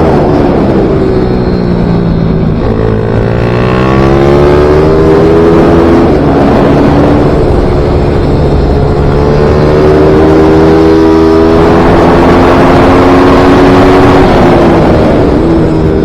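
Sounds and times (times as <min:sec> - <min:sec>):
motorcycle engine revving high: 0:00.0 - 0:16.0.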